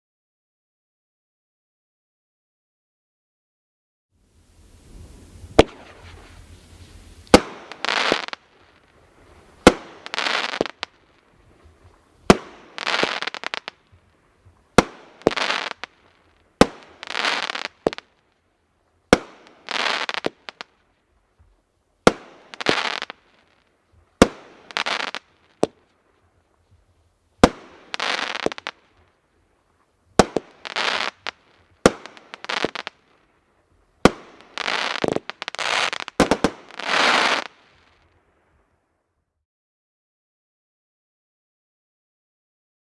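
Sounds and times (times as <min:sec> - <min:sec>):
firework crackling burst: 0:04.4 - 0:18.5, 0:19.1 - 0:21.0, 0:22.0 - 0:26.3, 0:27.4 - 0:38.3
firework launch thump: 0:05.4 - 0:08.3.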